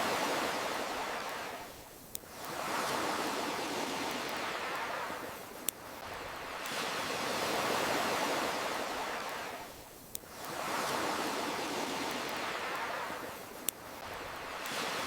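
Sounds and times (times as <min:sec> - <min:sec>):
ocean waves washing ashore: 0:00.0 - 0:15.0.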